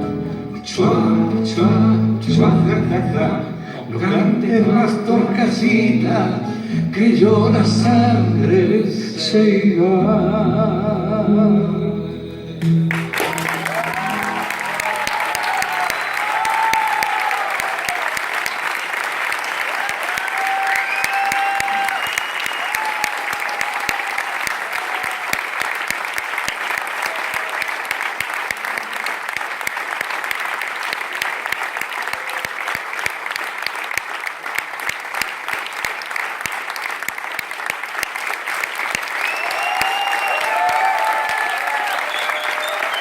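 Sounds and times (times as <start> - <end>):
audience applauding: 12.6 - 43.0
crowd cheering: 12.8 - 43.0.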